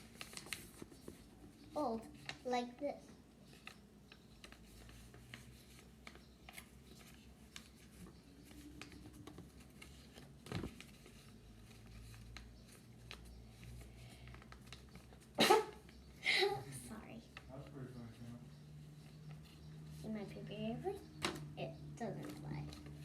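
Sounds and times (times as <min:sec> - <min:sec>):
paper rustling and tapping: 0:00.0 - 0:02.6, 0:03.5 - 0:16.0, 0:21.2 - 0:23.0
low steady hum: 0:00.0 - 0:23.0.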